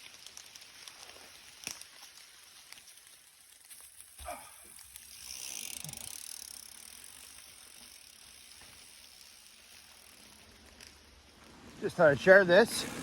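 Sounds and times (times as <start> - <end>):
bike tyres rushing over trail: 0.0 - 13.0.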